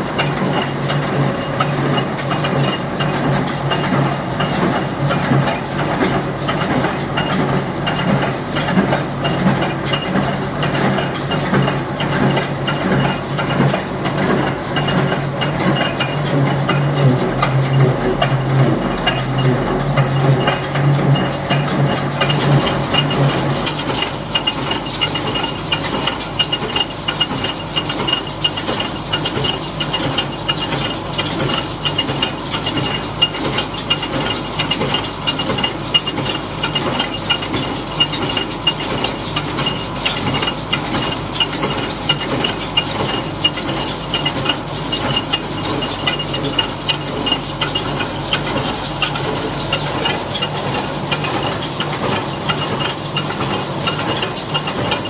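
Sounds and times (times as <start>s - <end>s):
tractor and baler clattering: 0.0s - 55.0s
high mechanical whine: 12.6s - 28.6s.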